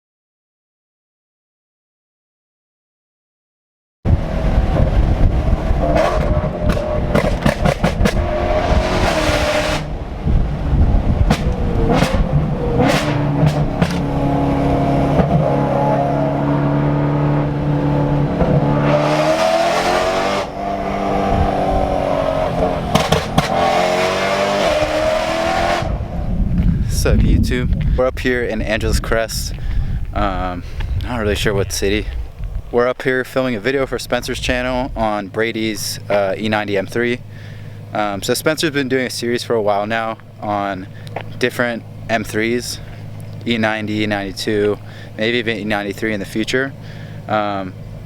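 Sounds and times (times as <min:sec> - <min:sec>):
car engine revving: 0:04.1 - 0:26.7, 0:34.2 - 0:48.0
exhaust cracks: 0:04.1 - 0:48.0.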